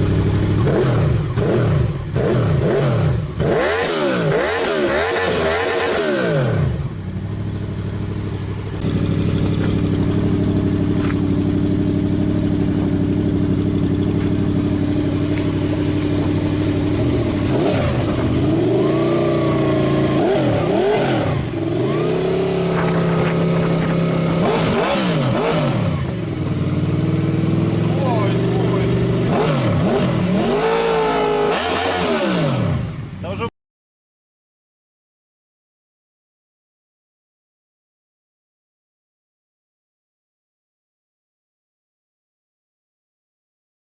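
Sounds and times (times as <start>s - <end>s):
motorcycle engine idling and revving: 0.0s - 33.5s.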